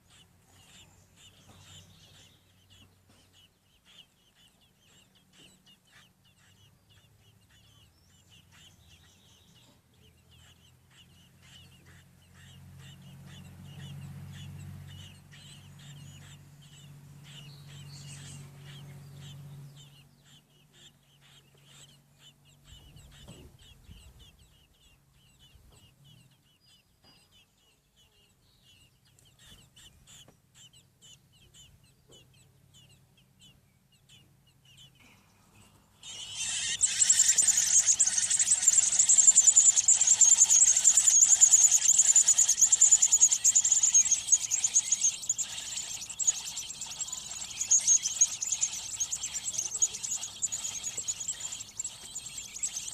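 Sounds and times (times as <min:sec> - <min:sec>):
nestlings peeping: 0:00.0 - 0:52.9
shrill begging chorus of chicks: 0:00.0 - 0:52.9.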